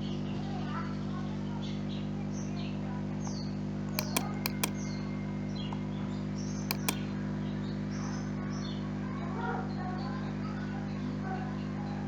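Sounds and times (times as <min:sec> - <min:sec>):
computer mouse clicks: 0:03.9 - 0:04.8, 0:06.7 - 0:07.0.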